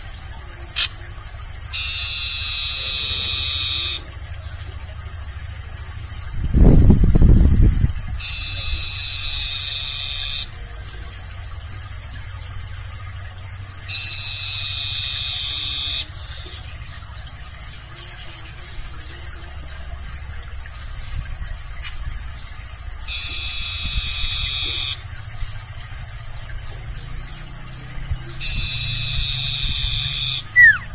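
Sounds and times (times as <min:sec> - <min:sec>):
songbird high-pitched call: 0:01.7 - 0:04.1, 0:08.2 - 0:10.6, 0:13.8 - 0:19.9, 0:23.1 - 0:25.0, 0:27.2 - 0:30.9
steady low rumble: 0:04.0 - 0:30.9.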